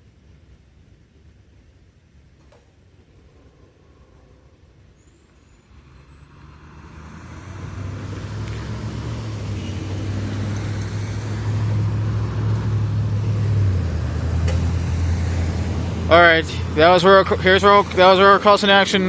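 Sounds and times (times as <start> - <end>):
vehicle engine running: 5.7 - 19.0.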